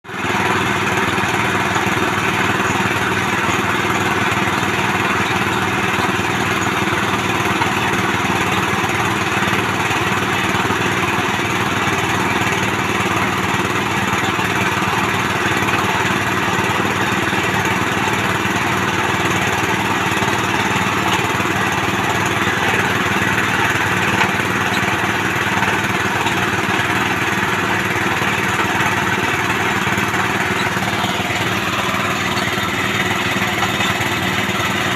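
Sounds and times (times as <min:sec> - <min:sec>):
small petrol engine running: 0:00.0 - 0:34.9.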